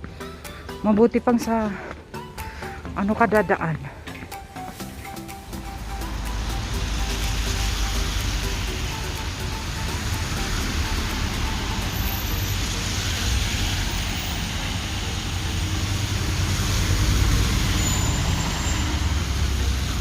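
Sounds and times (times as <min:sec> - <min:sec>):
road traffic: 0:00.0 - 0:20.0
vehicle passing close: 0:05.3 - 0:20.0.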